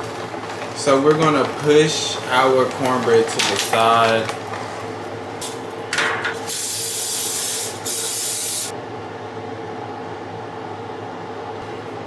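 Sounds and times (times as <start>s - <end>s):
aerosol spray hissing: 6.4s - 8.7s.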